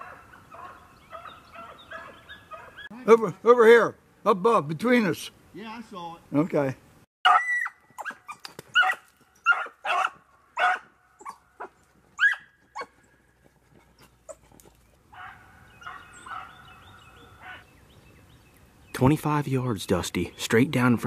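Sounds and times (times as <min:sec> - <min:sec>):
hound baying: 0:00.0 - 0:02.9, 0:07.2 - 0:17.6
hounds barking: 0:00.0 - 0:02.9, 0:07.2 - 0:13.0, 0:14.0 - 0:17.7.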